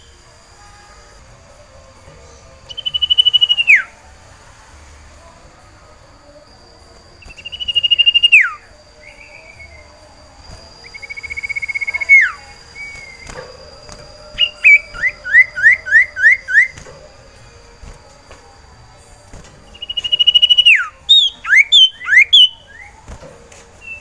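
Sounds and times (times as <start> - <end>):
bird whistling: 2.7 - 3.9, 7.2 - 9.9, 10.8 - 17.0, 19.7 - 23.0, 23.8 - 24.0.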